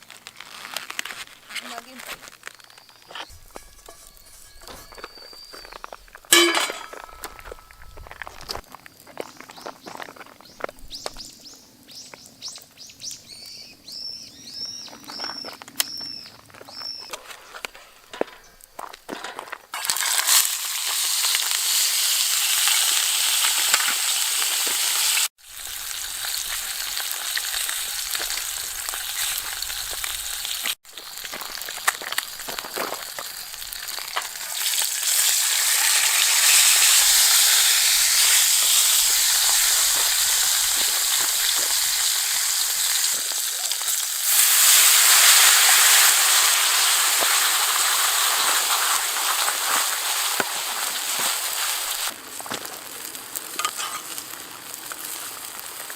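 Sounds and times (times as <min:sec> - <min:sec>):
fish sizzling in hot oil: 0:19.7 - 0:55.9.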